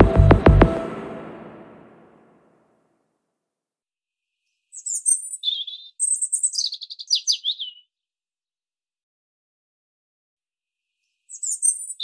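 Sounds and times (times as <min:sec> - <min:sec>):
songbird singing: 0:04.6 - 0:08.0, 0:11.2 - 0:12.0.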